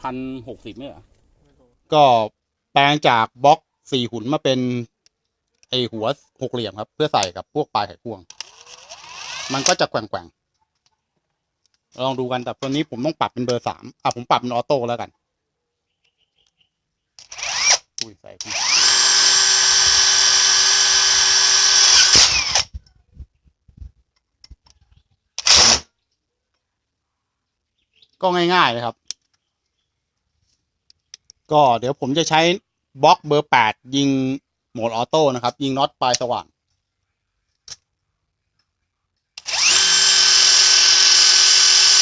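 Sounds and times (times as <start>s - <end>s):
impact wrench running: 8.4s - 9.8s, 17.3s - 22.7s, 25.4s - 25.8s, 39.4s - 42.0s
faint clicks: 29.0s - 31.5s.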